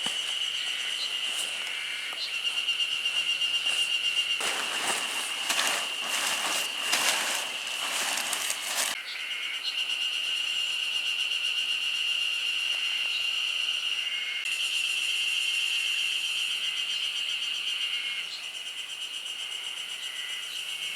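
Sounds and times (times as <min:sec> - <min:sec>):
insects trilling: 0:00.0 - 0:20.9
dense irregular crackling: 0:04.4 - 0:09.0.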